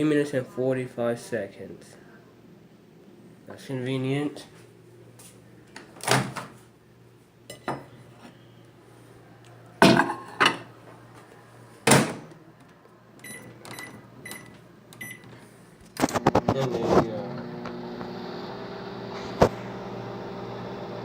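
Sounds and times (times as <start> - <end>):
plate knocking and clattering: 9.8 - 10.7
microwave keypad beeps: 13.2 - 15.3.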